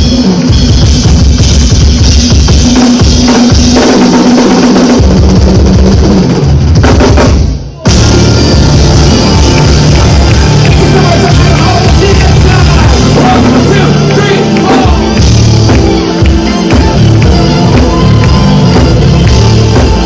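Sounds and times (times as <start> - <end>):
drum kit: 0.0 - 20.0
live band music: 0.0 - 20.0
bass guitar: 7.8 - 20.0.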